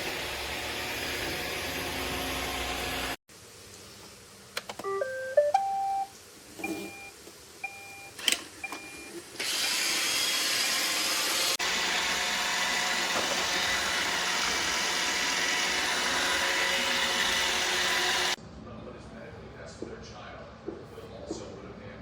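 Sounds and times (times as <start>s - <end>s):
robot vacuum whirring: 9.4s - 18.4s.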